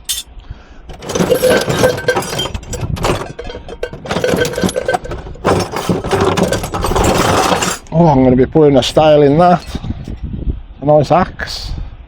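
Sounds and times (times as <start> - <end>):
metal objects clinking: 0.0 - 0.3, 0.9 - 8.0.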